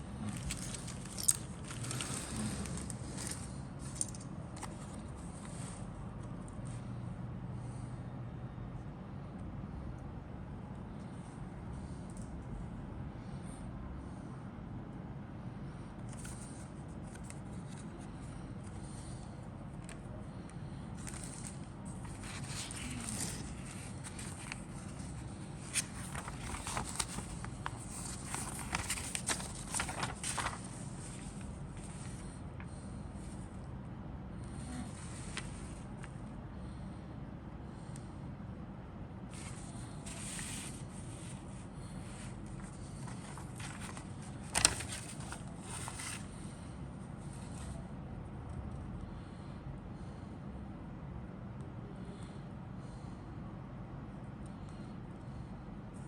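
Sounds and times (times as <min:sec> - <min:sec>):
steady low hum: 0:00.0 - 0:56.0
plastic parts and packaging rustling: 0:00.2 - 0:05.6, 0:21.0 - 0:32.3, 0:42.6 - 0:46.3.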